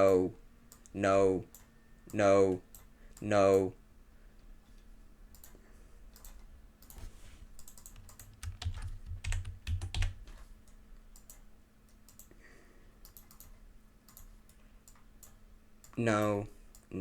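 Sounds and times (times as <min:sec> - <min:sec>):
computer clicks: 0:00.0 - 0:03.3, 0:05.3 - 0:12.4, 0:13.0 - 0:17.0.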